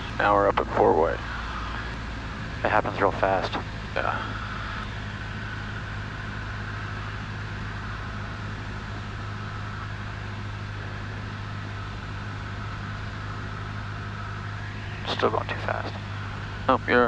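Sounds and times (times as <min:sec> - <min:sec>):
faint steady whine: 0:00.0 - 0:17.0
small plane engine drone: 0:00.0 - 0:17.0.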